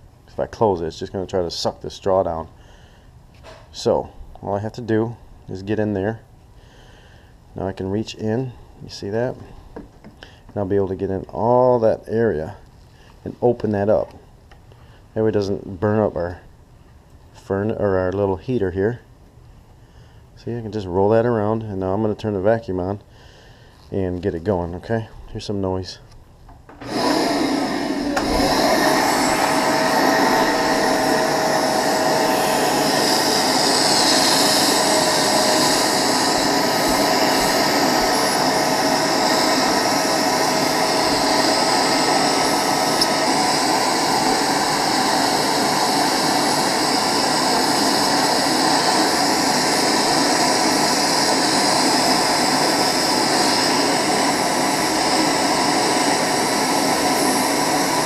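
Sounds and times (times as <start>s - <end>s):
vacuum cleaner motor running: 26.7s - 58.0s.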